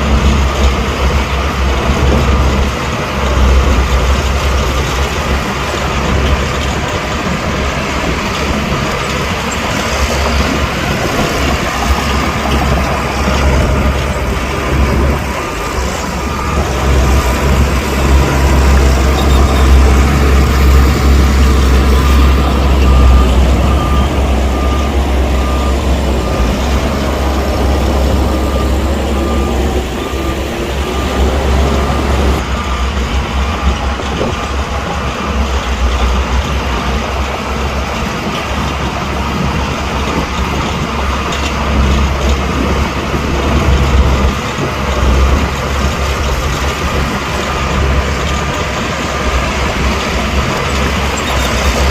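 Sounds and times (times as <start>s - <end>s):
heavy diesel machinery rumbling: 0.0s - 51.9s
reversing alarm beeping: 8.5s - 37.1s, 43.4s - 51.9s.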